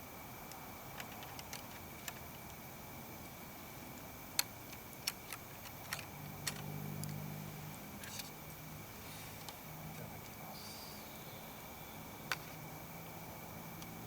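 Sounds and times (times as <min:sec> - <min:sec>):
sharp clicks: 0:04.3 - 0:07.2.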